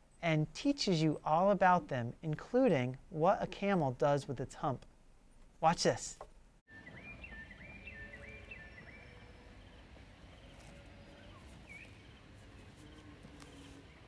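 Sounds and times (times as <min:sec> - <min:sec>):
bird whistling: 0:06.7 - 0:09.4.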